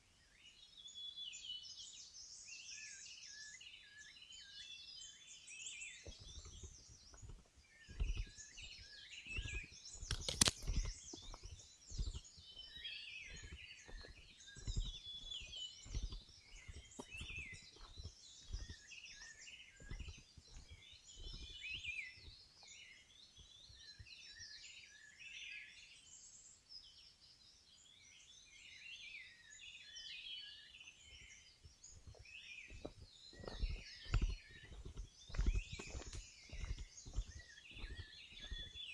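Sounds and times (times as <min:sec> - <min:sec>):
birds singing and chirping: 0:00.1 - 0:38.9
footsteps on a trail: 0:05.6 - 0:24.6, 0:31.0 - 0:38.9.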